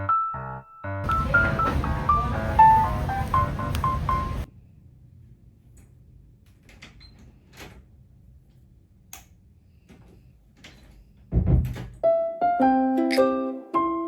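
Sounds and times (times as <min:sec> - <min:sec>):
background music: 0:00.0 - 0:04.5, 0:12.1 - 0:14.0.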